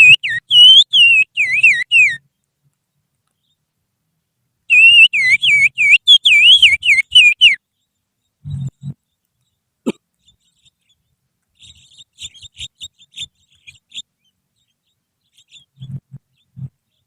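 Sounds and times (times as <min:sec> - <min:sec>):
finger whistling birdsong: 0:00.0 - 0:02.2, 0:04.7 - 0:07.6.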